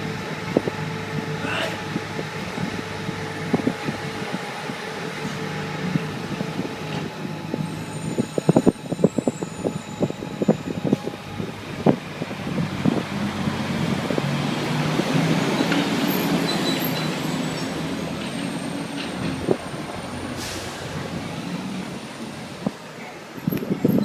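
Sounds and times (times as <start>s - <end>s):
street noise: 0.0s - 24.0s.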